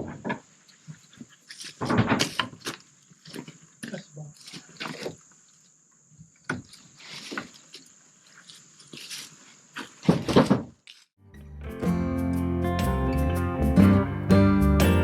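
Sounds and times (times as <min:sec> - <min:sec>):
handling knocks and rustling: 0:00.0 - 0:05.3, 0:06.3 - 0:11.1
acoustic guitar music: 0:11.2 - 0:15.0.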